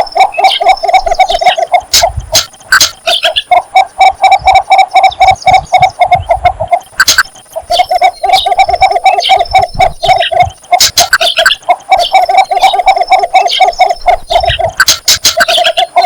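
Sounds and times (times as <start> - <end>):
bird clucking call: 0.0 - 16.0
sharp click: 1.9 - 3.3, 7.0 - 7.4, 10.8 - 11.5, 14.4 - 15.6.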